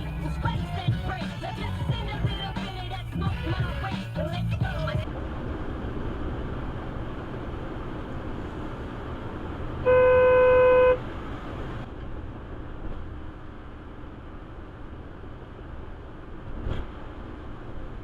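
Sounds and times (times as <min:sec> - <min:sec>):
road noise from moving vehicle: 0:00.0 - 0:18.0
car horn blast: 0:09.8 - 0:11.0.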